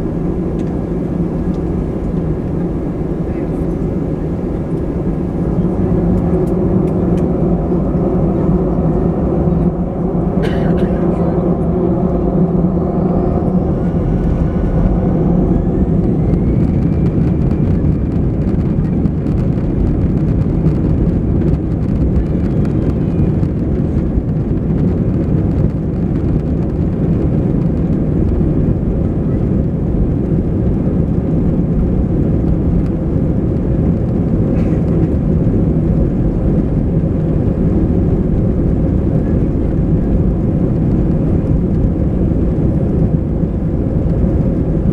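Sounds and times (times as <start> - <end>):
faint rising whine: 0.0 - 19.3
jet engine rumble in cabin: 0.0 - 44.9.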